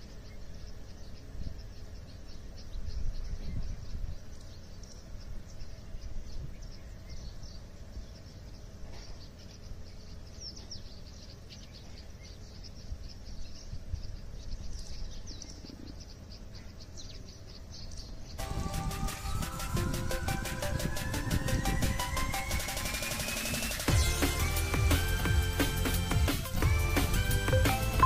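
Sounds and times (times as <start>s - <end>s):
small birds chirping: 0.0s - 28.0s
music: 18.4s - 28.0s.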